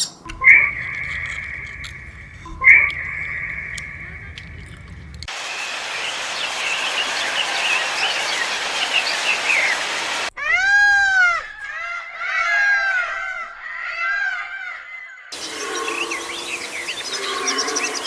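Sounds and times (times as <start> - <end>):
chorus of small chirping calls: 0.0 - 10.3, 15.3 - 18.0.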